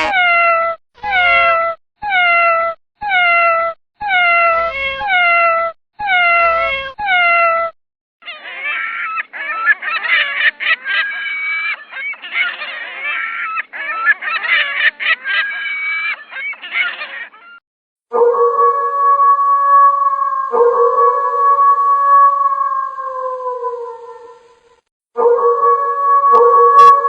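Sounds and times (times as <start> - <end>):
cat meowing: 0.0 - 9.8.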